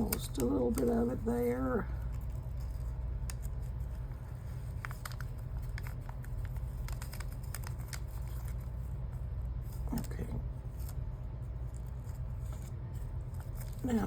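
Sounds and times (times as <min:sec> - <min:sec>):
paper sticker peeling: 0:00.0 - 0:14.0.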